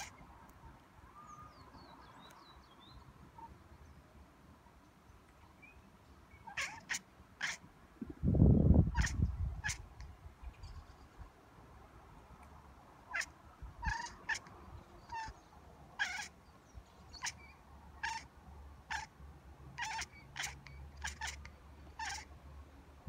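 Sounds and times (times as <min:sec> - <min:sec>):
cat chirping: 0:00.0 - 0:00.2, 0:06.3 - 0:07.7, 0:08.8 - 0:10.0, 0:13.1 - 0:15.4, 0:16.0 - 0:16.4, 0:17.1 - 0:19.1, 0:19.8 - 0:22.3.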